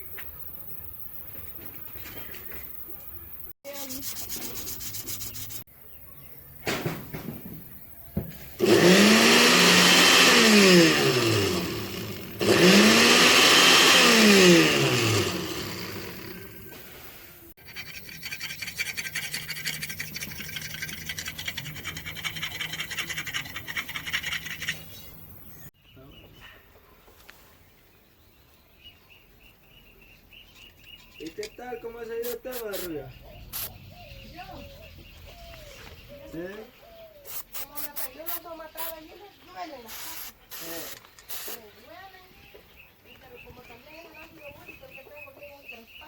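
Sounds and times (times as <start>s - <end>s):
blender motor whirring: 8.5s - 16.8s.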